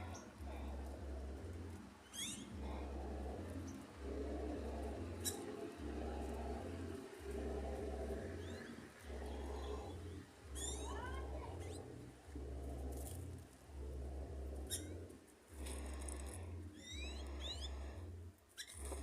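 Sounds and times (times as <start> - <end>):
steady low rumble: 0.0 - 19.0
bird chirping: 1.7 - 12.0, 14.6 - 15.1, 16.1 - 17.9.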